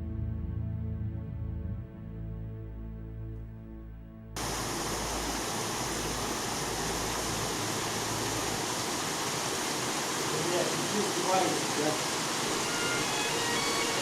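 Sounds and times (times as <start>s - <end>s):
background music: 0.0s - 4.4s, 12.6s - 14.0s
waterfall rushing: 4.4s - 14.0s.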